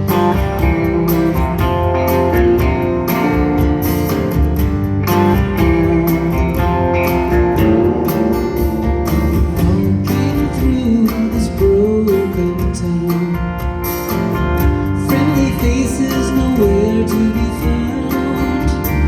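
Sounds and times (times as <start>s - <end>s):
bass guitar: 0.0s - 19.0s
steady drum beat: 0.0s - 19.0s
strummed acoustic guitar: 0.0s - 19.0s
person singing: 5.1s - 13.7s, 15.0s - 19.0s.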